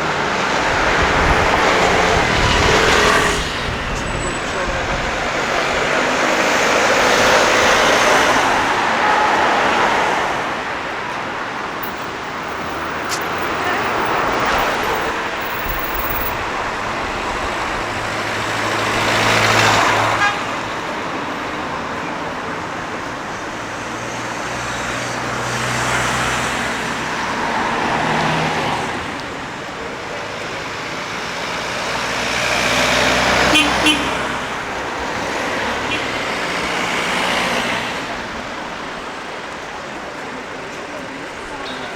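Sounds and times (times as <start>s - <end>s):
heavy vehicle engine hum: 0.0s - 9.2s, 10.3s - 27.7s
vehicles passing: 0.0s - 41.9s.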